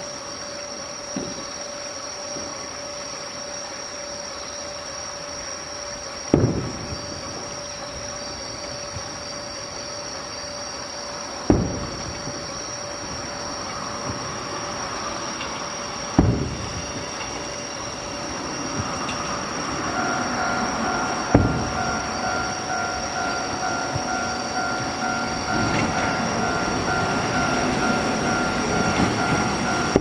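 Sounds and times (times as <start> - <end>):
train hum: 0.0 - 30.0
sharp thumps: 21.3 - 22.2.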